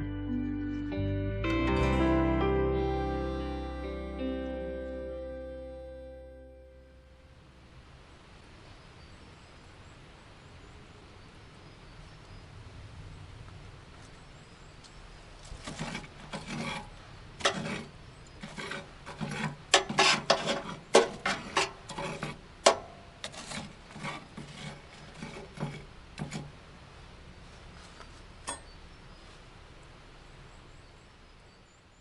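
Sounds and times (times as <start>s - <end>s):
wood rasping and rubbing: 15.4s - 26.6s.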